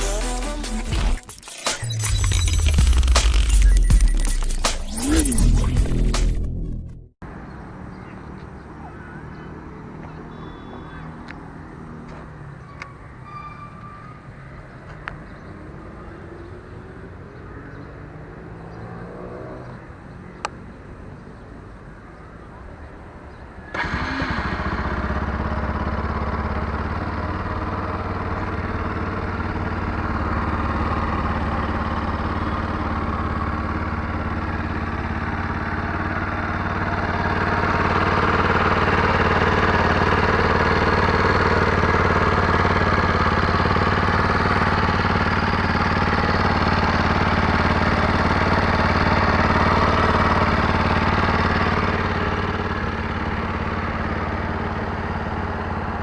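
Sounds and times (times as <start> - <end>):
motorcycle engine idling: 23.3 - 56.0.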